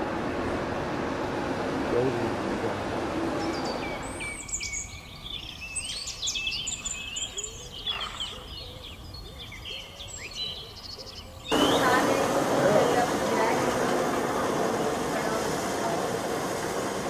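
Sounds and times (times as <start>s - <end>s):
birds chirping and whistling: 3.4s - 13.2s.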